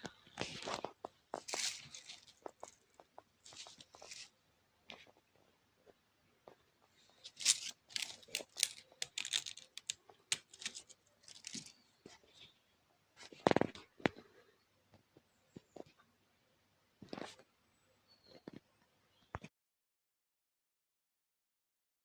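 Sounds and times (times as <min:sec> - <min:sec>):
paper crackling and crinkling: 0:00.3 - 0:05.2, 0:07.1 - 0:11.9.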